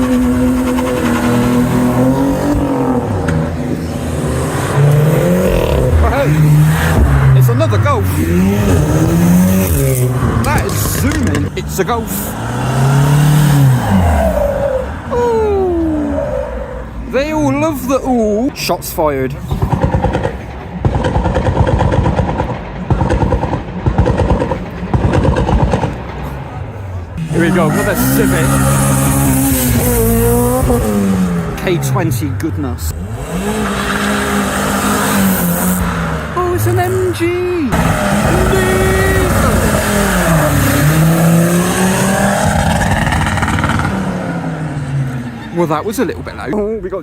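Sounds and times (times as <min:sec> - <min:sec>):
car engine revving hard: 0:00.0 - 0:15.4, 0:27.2 - 0:46.5.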